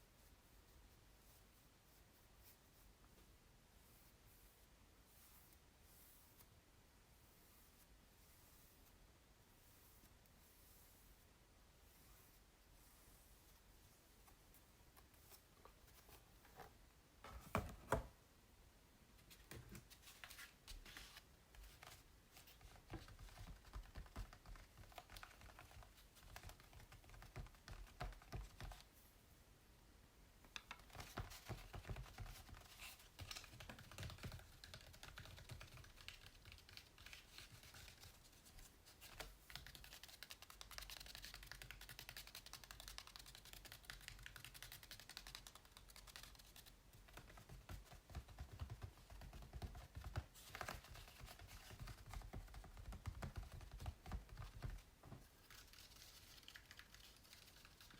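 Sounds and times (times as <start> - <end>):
rubbing strokes on canvas: 7.2 - 16.3.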